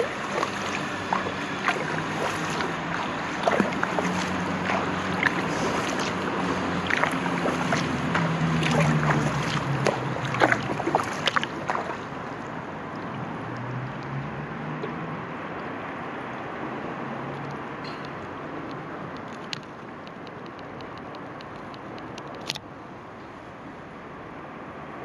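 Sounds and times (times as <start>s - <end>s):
paddle splashing in water: 0.0s - 13.3s.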